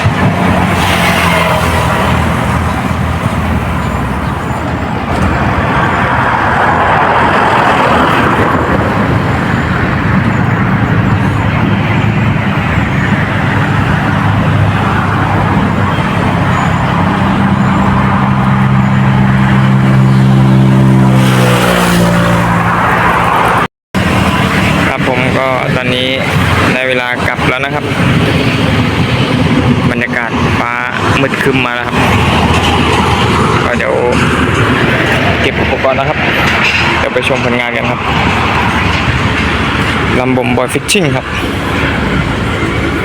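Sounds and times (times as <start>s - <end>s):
motor engine humming: 0.0s - 21.6s.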